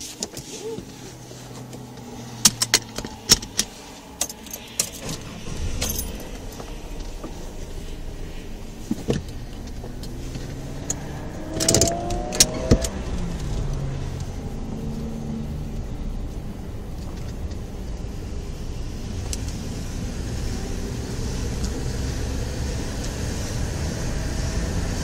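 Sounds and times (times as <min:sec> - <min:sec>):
car engine idling: 0:00.0 - 0:24.4
sharp clicks and rattles: 0:01.5 - 0:17.8.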